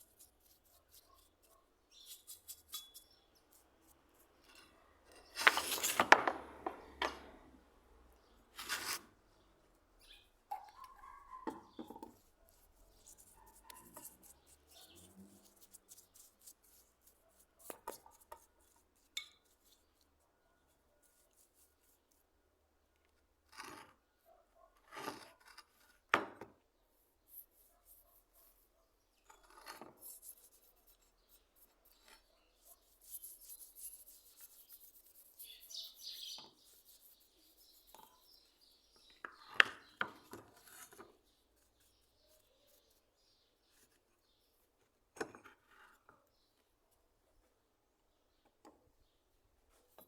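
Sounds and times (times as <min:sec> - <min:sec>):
rubbing and scraping strokes: 0:00.0 - 0:06.2, 0:08.6 - 0:09.1, 0:12.0 - 0:20.2, 0:29.3 - 0:38.7
sharp knocks and clinks: 0:02.5 - 0:03.2.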